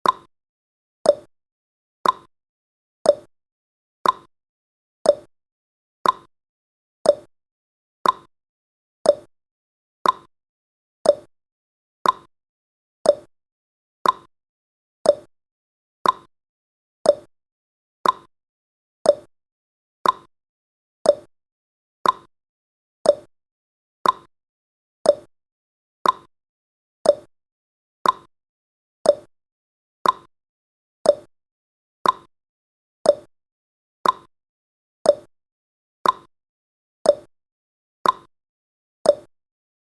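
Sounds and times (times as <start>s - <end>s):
clock-like timer ticking: 0.0s - 0.3s, 1.1s - 1.3s, 2.0s - 2.3s, 3.1s - 3.3s, 4.0s - 4.3s, 5.1s - 5.3s, 6.0s - 6.3s, 7.1s - 7.3s, 8.0s - 8.3s, 9.1s - 9.3s, 10.0s - 10.3s, 11.0s - 11.3s, 12.0s - 12.3s, 13.1s - 13.3s, 14.0s - 14.3s, 15.0s - 15.3s, 16.0s - 16.3s, 17.0s - 17.3s, 18.0s - 18.3s, 19.0s - 19.3s, 20.0s - 20.3s, 21.0s - 21.3s, 22.0s - 22.3s, 23.0s - 23.3s, 24.0s - 24.3s, 25.0s - 25.3s, 26.0s - 26.3s, 27.0s - 27.3s, 28.0s - 28.3s, 29.0s - 29.3s, 30.0s - 30.3s, 31.0s - 31.3s, 32.0s - 32.3s, 33.0s - 33.3s, 34.0s - 34.3s, 35.1s - 35.3s, 36.0s - 36.3s, 37.1s - 37.3s, 38.0s - 38.3s, 39.1s - 39.3s.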